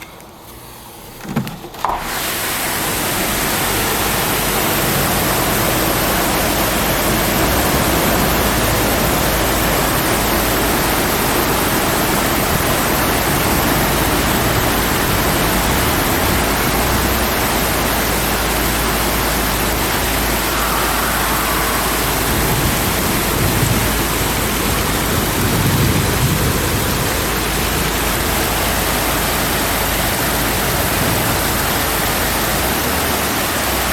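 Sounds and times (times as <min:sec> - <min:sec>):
heavy rain pouring: 0:00.7 - 0:33.9
low thunder rumbles: 0:04.0 - 0:29.1.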